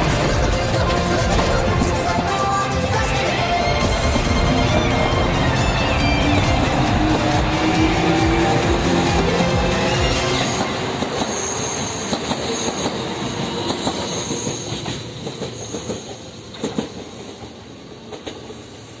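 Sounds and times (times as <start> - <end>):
high wheel squeals: 0.0 - 17.4.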